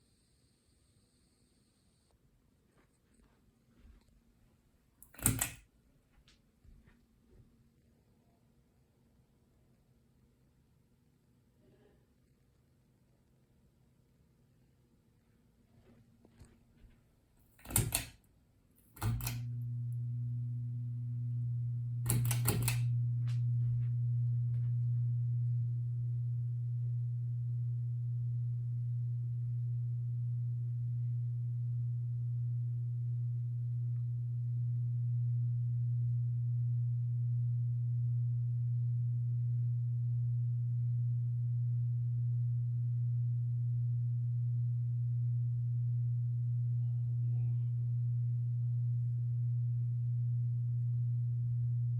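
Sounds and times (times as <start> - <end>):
fan clicks: 5.0 - 5.6, 17.6 - 18.2, 19.0 - 19.6, 22.0 - 23.8
ceiling fan motor hum: 18.9 - 51.9.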